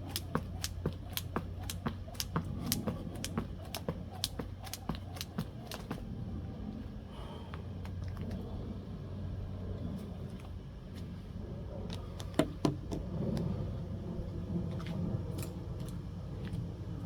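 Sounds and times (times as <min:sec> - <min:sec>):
jump rope hitting floor: 0:00.0 - 0:06.0
low hum: 0:00.0 - 0:12.4.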